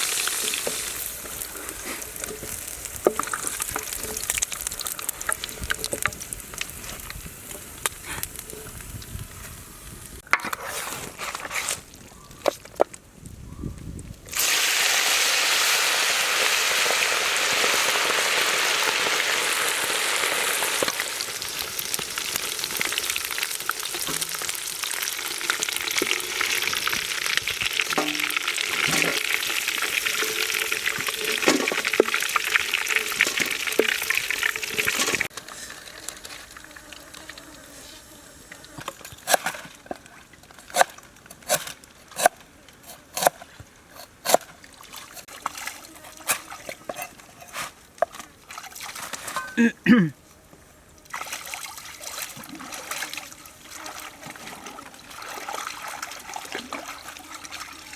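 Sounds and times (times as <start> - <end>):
sizzling and crackling in hot oil: 0.0 - 10.2, 14.3 - 37.4.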